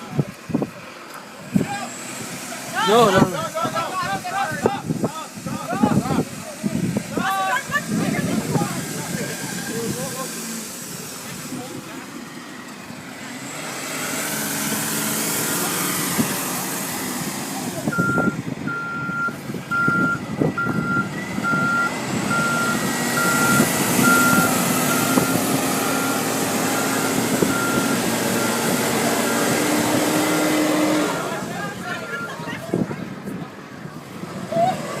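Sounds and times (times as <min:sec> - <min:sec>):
truck engine running: 0:00.0 - 0:35.0
truck reversing alarm beeping: 0:17.9 - 0:32.7.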